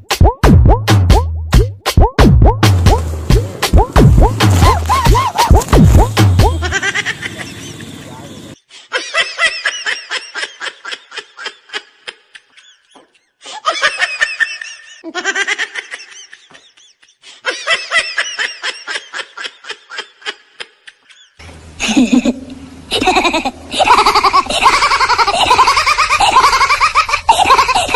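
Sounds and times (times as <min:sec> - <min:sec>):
street background noise: 0:02.9 - 0:08.6
high-pitched rapid laughter: 0:03.7 - 0:08.2, 0:21.8 - 0:27.9
woman laughing loudly: 0:04.5 - 0:08.1, 0:08.9 - 0:27.9.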